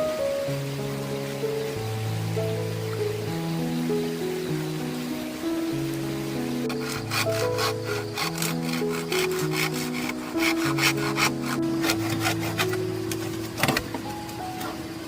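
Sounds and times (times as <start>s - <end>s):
background music: 0.0s - 15.0s
hand saw cutting wood: 6.7s - 12.9s.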